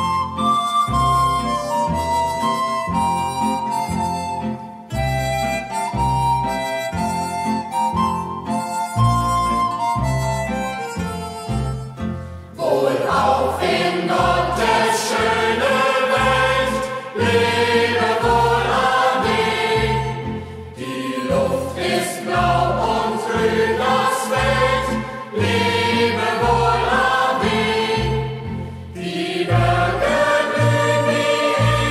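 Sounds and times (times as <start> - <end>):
instrumental accompaniment with bass: 0.0 - 31.9
youth choir singing: 12.6 - 31.9.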